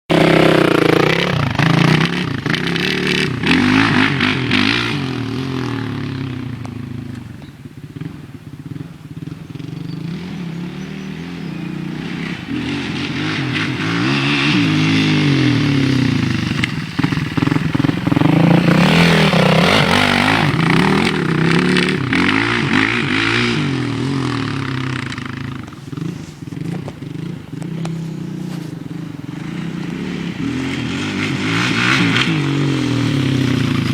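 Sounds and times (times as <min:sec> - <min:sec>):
motorcycle engine revving: 0:00.1 - 0:33.9.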